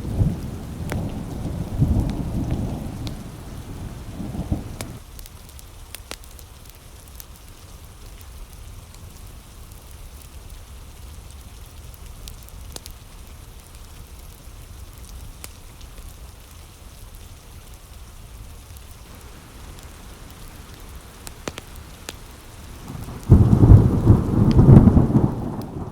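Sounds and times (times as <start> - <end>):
deep rumbling thunderclap: 0.0 - 5.0, 19.1 - 25.9
steady rain: 0.0 - 25.9.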